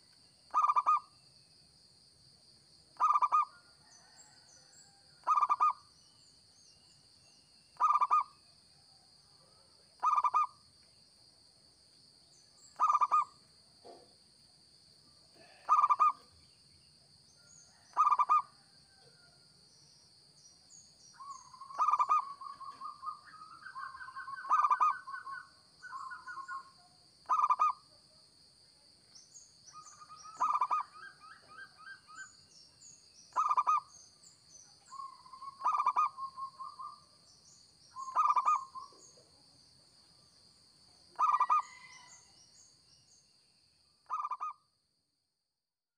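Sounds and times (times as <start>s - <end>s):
faint bird chirps: 0.0s - 1.8s, 2.9s - 11.2s, 12.2s - 14.2s, 14.9s - 28.1s, 28.7s - 44.8s
dove cooing: 0.5s - 1.0s, 3.0s - 4.2s, 10.0s - 10.5s, 12.8s - 13.3s, 15.4s - 16.2s, 21.5s - 26.7s, 27.3s - 27.8s, 30.0s - 32.3s, 33.3s - 33.8s, 35.0s - 36.9s, 38.0s - 39.1s, 41.2s - 41.9s.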